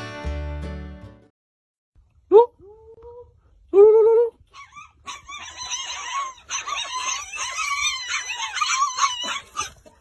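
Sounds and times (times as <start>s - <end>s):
puppies squealing and whining: 4.4s - 10.0s.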